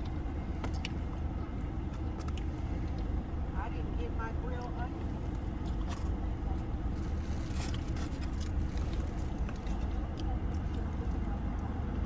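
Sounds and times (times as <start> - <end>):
car rumble from inside cabin: 0.0 - 12.0
faint clicks and rustles: 5.0 - 11.8.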